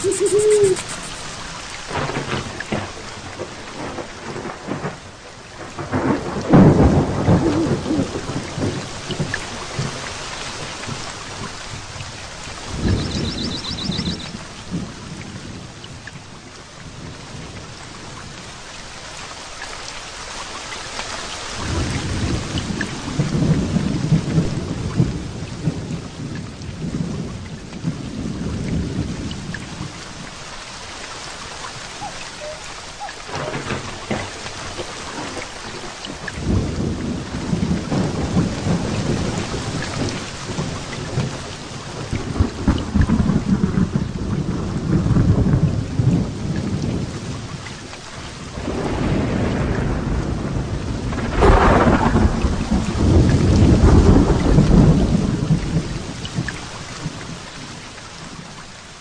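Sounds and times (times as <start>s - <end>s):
thunder rumbling: 0.0s - 15.8s, 31.7s - 47.5s, 48.5s - 57.4s
heavy rain falling: 0.0s - 59.0s.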